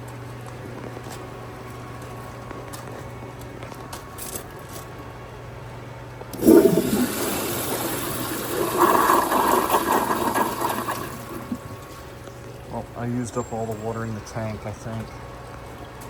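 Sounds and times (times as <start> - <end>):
toilet flushing: 6.3 - 12.2.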